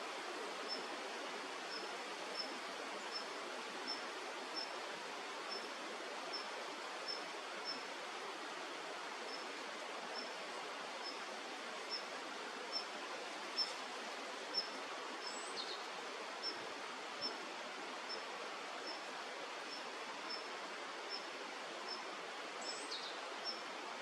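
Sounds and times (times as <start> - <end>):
outdoor background hiss: 0.0 - 24.0.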